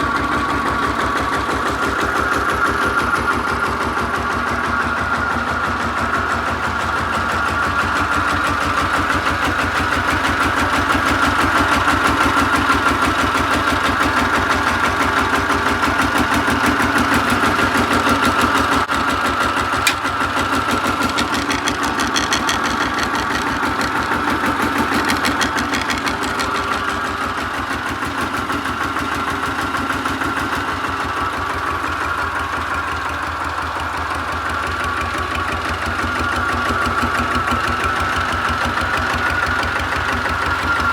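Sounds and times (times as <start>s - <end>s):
tractor engine running: 0.0s - 40.9s
sharp click: 19.8s - 20.1s.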